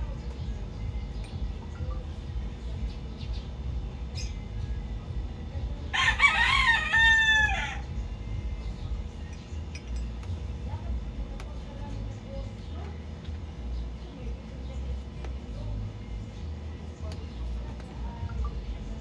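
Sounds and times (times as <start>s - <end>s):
low rumble: 0.0s - 12.6s
rooster crowing: 5.9s - 7.9s.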